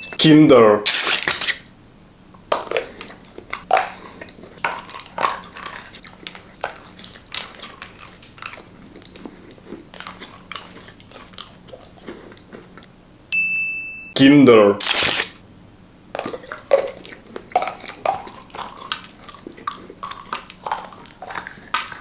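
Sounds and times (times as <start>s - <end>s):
chewing mouth sounds: 2.4s - 12.9s, 16.1s - 22.0s
chocolate snapping when bitten: 14.8s - 15.4s.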